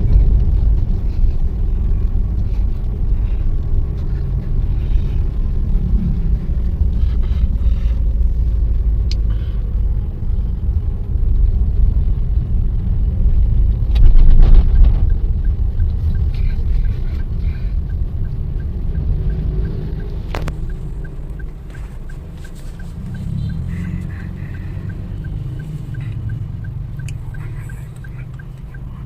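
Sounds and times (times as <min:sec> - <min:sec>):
car engine and tyre rumble: 0:00.0 - 0:29.0
faint regular ticking: 0:14.8 - 0:29.0.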